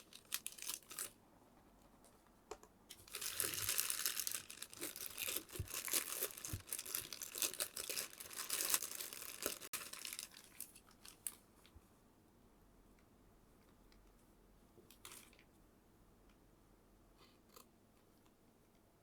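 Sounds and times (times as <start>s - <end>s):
packaging crinkling and rustling: 0.0s - 1.2s, 2.9s - 11.4s.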